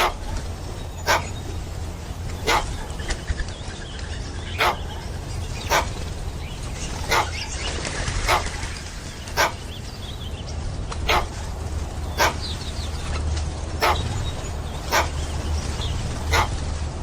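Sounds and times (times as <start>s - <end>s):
dog barking: 0.0s - 1.5s, 2.3s - 3.1s, 4.4s - 6.1s, 7.0s - 7.5s, 8.2s - 8.7s, 9.3s - 9.7s, 11.0s - 11.5s, 12.1s - 12.5s, 13.8s - 15.3s, 16.2s - 16.6s
steady low hum: 0.0s - 17.0s.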